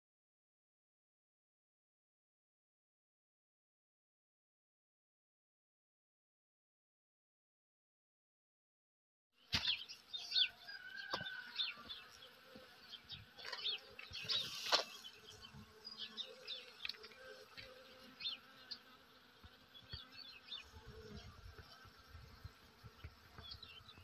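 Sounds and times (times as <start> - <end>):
insect buzzing: 9.4 - 24.0
small birds chirping: 9.4 - 24.0.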